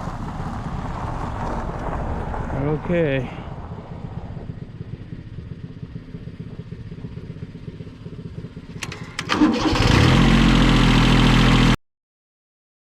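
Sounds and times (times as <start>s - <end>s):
diesel engine starting: 7.1s - 11.8s
sharp clicks: 8.8s - 9.4s.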